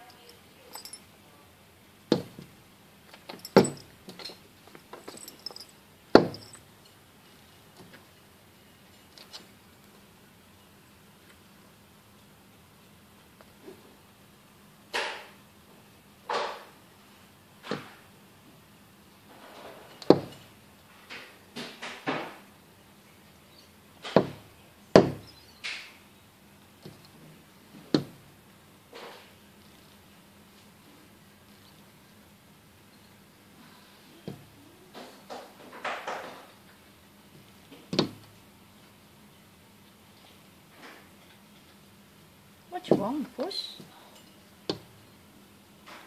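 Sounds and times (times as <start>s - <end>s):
sharp knocks on window glass: 6.1s - 6.4s, 20.0s - 20.4s, 24.0s - 25.3s.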